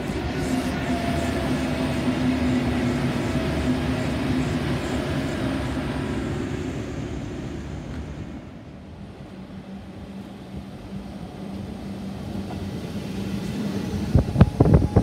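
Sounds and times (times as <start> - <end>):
diesel railcar droning hum: 0.0 - 15.0
wheels rumbling on rails: 0.0 - 15.0.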